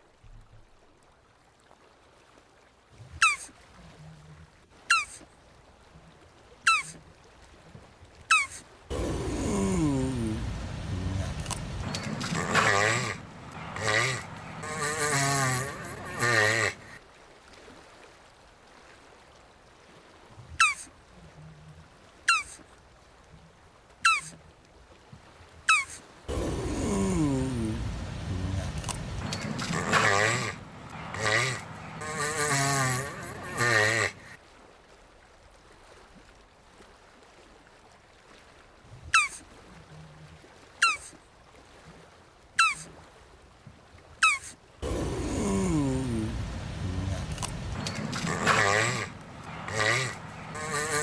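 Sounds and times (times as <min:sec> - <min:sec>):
animal chirping: 0:22.3 - 0:22.6, 0:40.8 - 0:41.1.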